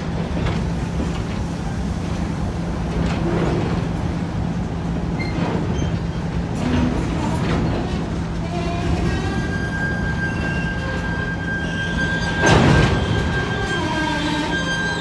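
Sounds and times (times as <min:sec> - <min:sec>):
train wheels rumbling on rails: 0:00.0 - 0:15.0
high wheel squeal: 0:08.8 - 0:15.0.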